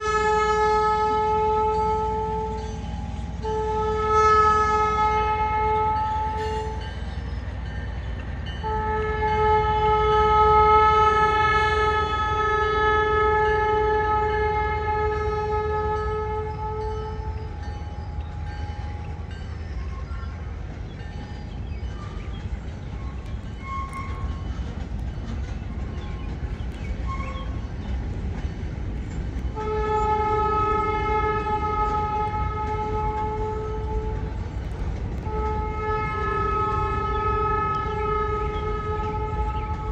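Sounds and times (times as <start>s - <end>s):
locomotive air horn chord: 0.0s - 7.0s, 8.6s - 19.2s, 23.1s - 24.5s, 26.3s - 27.9s, 29.4s - 34.5s, 35.2s - 39.9s.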